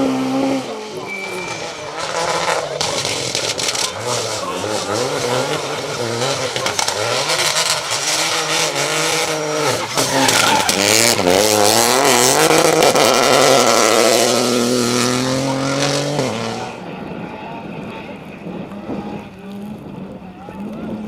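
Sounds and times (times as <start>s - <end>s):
rally car engine revving: 0.0s - 21.0s.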